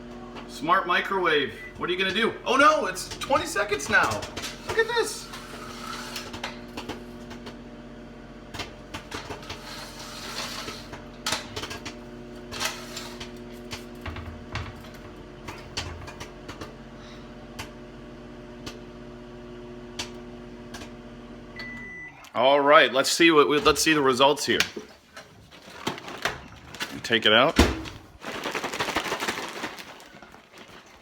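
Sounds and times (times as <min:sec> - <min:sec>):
microwave oven humming: 0:00.0 - 0:24.5
popcorn popping: 0:01.8 - 0:07.7, 0:08.3 - 0:17.9, 0:18.5 - 0:18.9, 0:19.8 - 0:21.0, 0:25.7 - 0:31.0.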